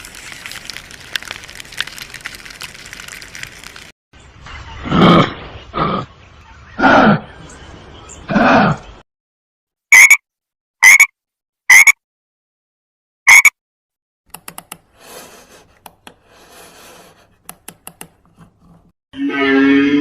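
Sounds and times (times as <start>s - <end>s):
frog croaking: 10.0s - 10.2s, 10.8s - 11.1s, 11.7s - 12.0s.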